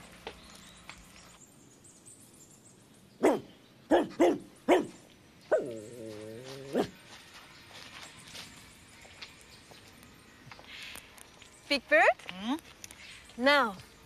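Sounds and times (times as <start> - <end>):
dog barking: 3.2 - 5.8, 6.7 - 7.0.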